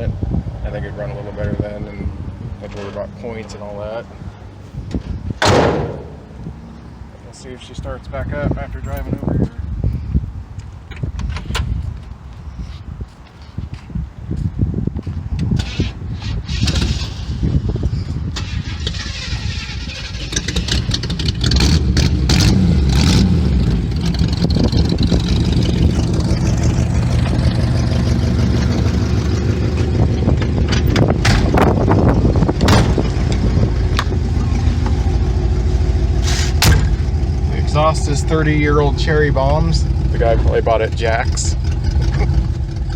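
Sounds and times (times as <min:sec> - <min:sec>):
car engine running: 0:05.4 - 0:07.0, 0:20.3 - 0:42.9
starter cranking engine: 0:18.4 - 0:22.2.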